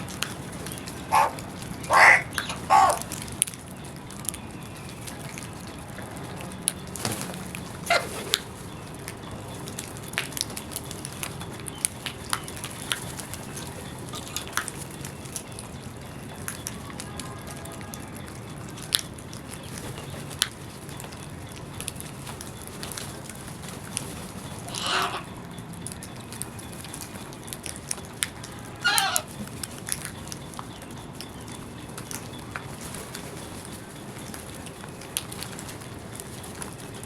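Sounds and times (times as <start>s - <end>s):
birds ticking and chirping: 0.0s - 37.0s
bird call: 0.3s - 3.2s, 24.5s - 25.4s, 28.7s - 29.4s.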